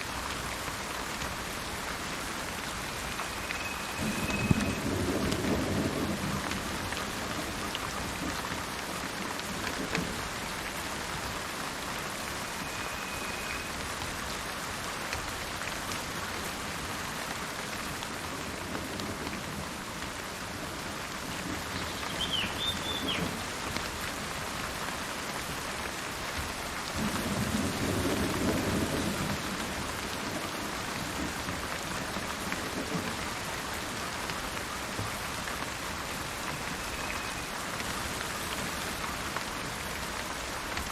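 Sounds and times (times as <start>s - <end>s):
steady rain falling: 0.0s - 40.9s
low roll of thunder: 4.0s - 8.3s.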